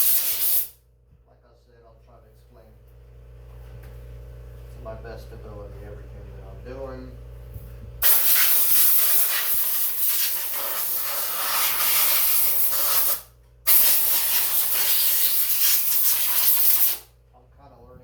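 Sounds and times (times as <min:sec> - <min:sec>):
compressed air blow gun hissing: 0:00.0 - 0:00.7, 0:08.0 - 0:17.1.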